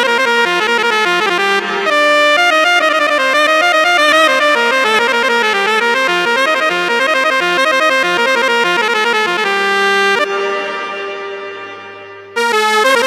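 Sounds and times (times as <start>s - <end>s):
keyboard playing quick melody: 0.0s - 13.0s.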